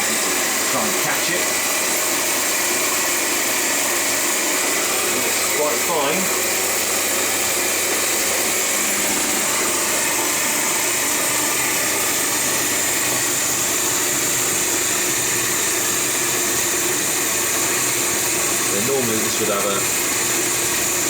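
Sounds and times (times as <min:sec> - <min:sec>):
coffee grinder running: 0:00.0 - 0:21.0.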